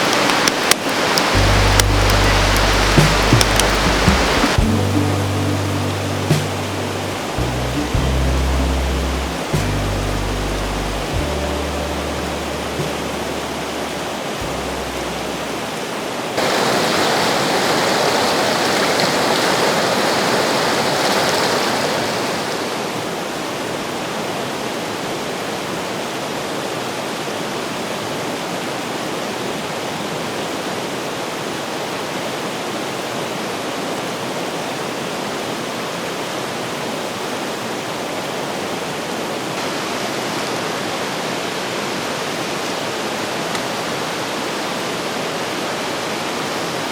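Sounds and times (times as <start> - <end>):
river rushing over rocks: 0.0 - 7.6, 11.9 - 46.9
low sustained music notes: 1.3 - 16.0.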